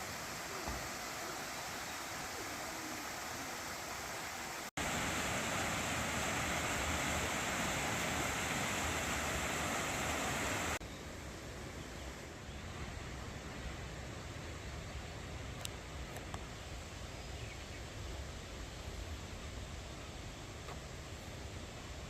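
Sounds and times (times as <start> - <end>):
stream water rushing: 0.0 - 10.8.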